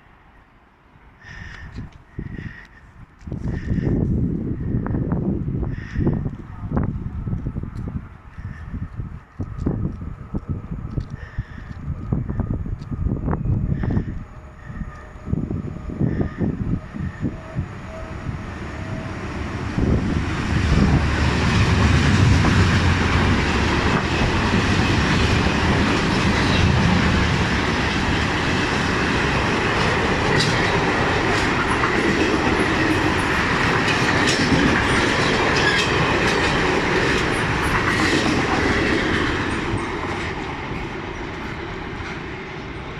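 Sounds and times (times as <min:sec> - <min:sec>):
freight train rumble: 0:00.0 - 0:42.9
train wagons clattering: 0:20.2 - 0:42.8
wheels clicking over rail joints: 0:21.4 - 0:42.3.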